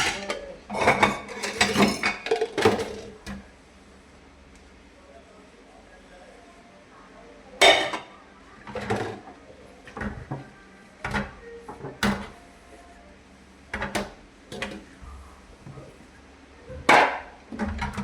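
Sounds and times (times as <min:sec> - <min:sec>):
kitchen things knocking and clattering: 0:00.0 - 0:03.4, 0:07.6 - 0:08.1, 0:13.7 - 0:14.8, 0:16.7 - 0:18.0.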